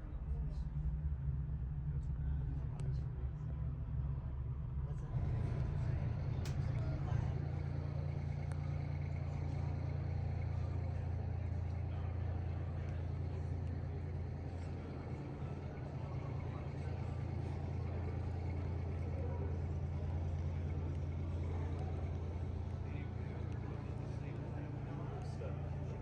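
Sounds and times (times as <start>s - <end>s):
diesel truck engine idling: 0.3s - 26.0s.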